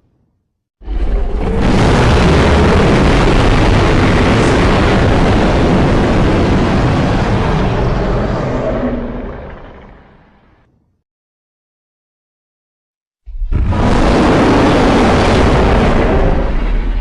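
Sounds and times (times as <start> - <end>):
giant creature roar: 0.8 - 10.3.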